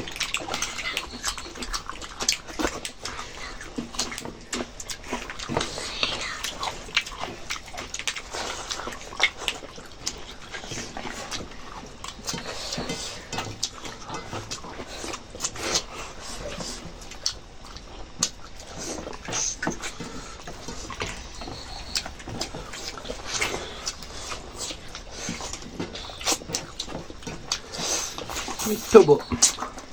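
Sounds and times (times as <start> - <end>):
wet chewing: 0.0 - 29.9
small mouth clicks: 27.5 - 29.8.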